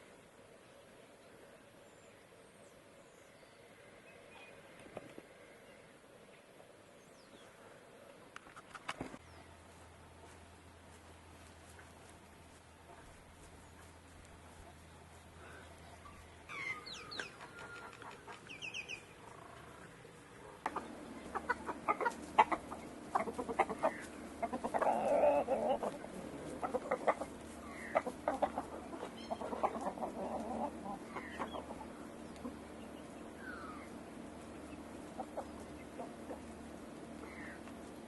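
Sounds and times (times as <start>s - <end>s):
chickens clucking: 11.6s - 38.0s.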